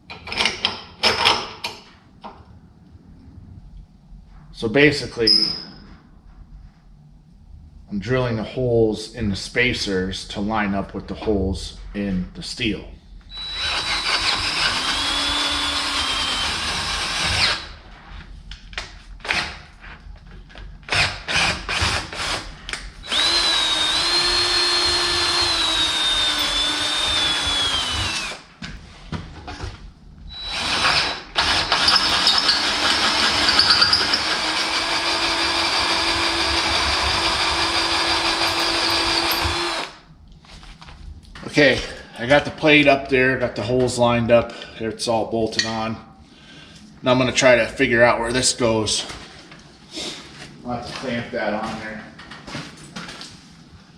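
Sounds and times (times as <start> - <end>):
electric drill whining: 13.3 - 17.8, 23.0 - 28.5, 30.3 - 40.0.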